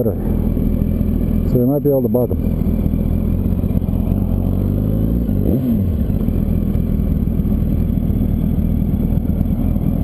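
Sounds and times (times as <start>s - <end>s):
motorcycle engine: 0.0s - 10.0s.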